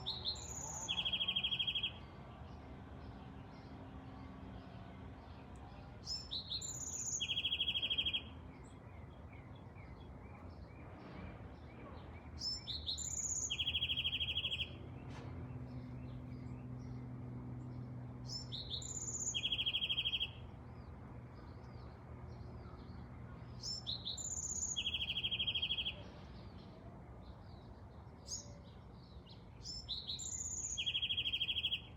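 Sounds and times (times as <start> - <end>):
faint bird chirps: 0.0 - 2.0, 5.8 - 8.3, 11.8 - 16.5, 18.3 - 20.4, 22.6 - 27.6, 28.2 - 31.9
songbird singing with trill: 0.0 - 11.0, 11.6 - 31.9.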